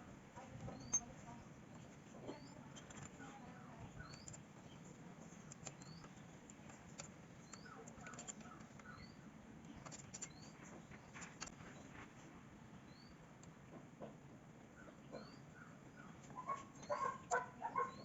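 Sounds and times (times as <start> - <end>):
faint high chirps: 0.7 - 4.8.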